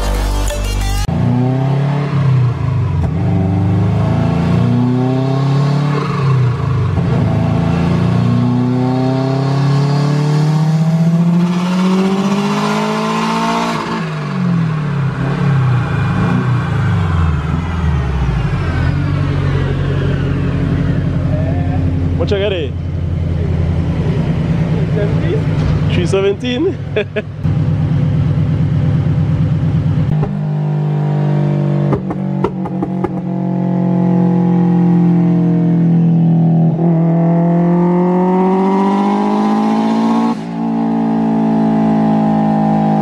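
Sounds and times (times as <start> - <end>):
car engine revving on dyno: 1.1 - 17.6, 30.0 - 43.0.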